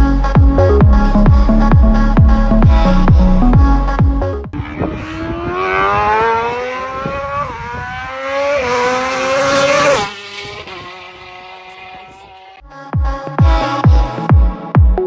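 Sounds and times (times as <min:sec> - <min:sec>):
motorcycle engine accelerating: 0:00.0 - 0:12.6.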